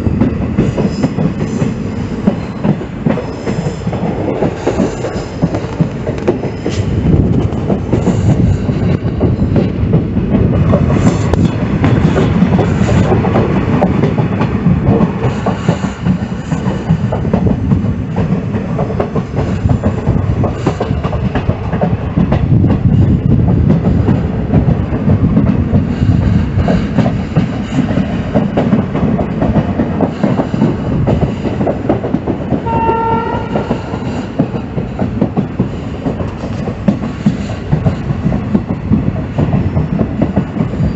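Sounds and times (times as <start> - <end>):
train rumble: 0.0 - 40.9
train wheels clattering on rails: 0.0 - 40.9
locomotive horn blast: 32.6 - 33.7.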